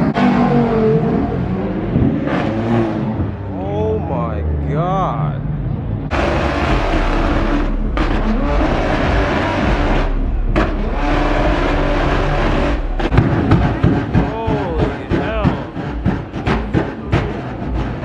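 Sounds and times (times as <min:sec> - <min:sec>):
car engines at full throttle: 0:00.0 - 0:18.0
engine revving: 0:00.0 - 0:18.0
exhaust pops and crackles: 0:06.1 - 0:18.0.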